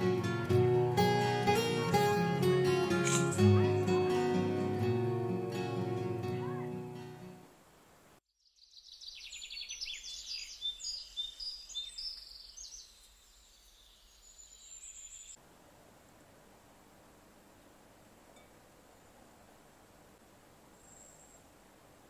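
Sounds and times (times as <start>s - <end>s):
small birds chirping: 8.4s - 15.4s.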